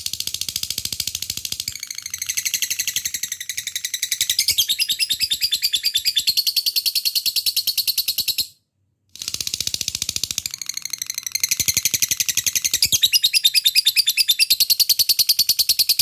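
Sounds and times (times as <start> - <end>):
lovebird chattering: 11.1 - 16.0.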